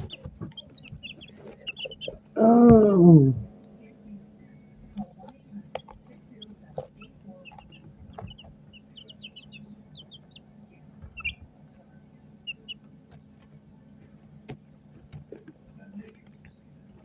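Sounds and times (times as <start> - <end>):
chickens chirping: 0.0 - 2.6, 4.2 - 17.0
steady low hum: 0.0 - 17.0.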